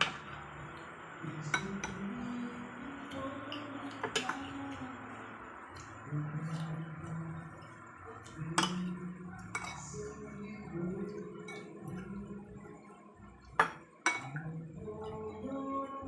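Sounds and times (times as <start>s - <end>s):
utensils clinking on plate: 1.4s - 2.2s, 3.5s - 4.8s, 8.4s - 10.2s, 13.6s - 15.2s.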